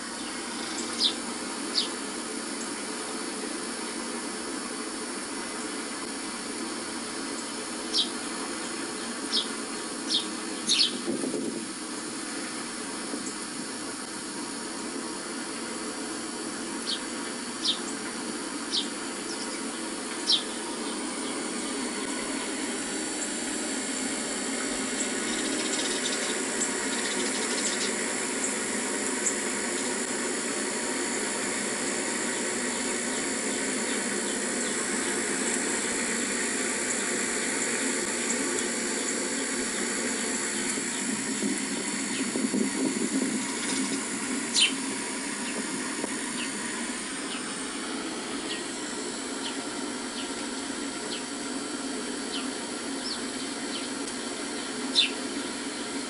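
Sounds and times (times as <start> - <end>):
sharp bird chirps: 0.2 - 2.0, 7.9 - 8.2, 9.3 - 11.0, 16.9 - 17.9, 20.2 - 21.4, 43.6 - 44.8, 54.9 - 55.2.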